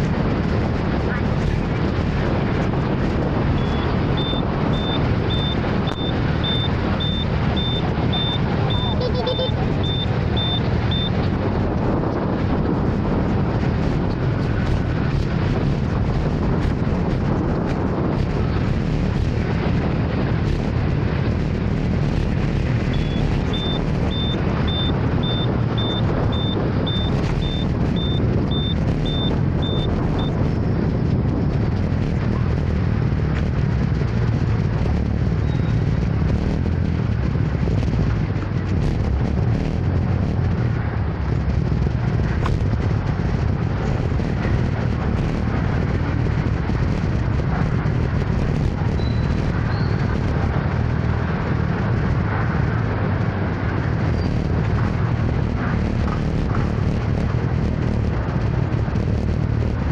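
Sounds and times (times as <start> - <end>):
wind and road noise: 0.0 - 59.9
high electronic beep: 3.6 - 11.2, 22.9 - 30.4.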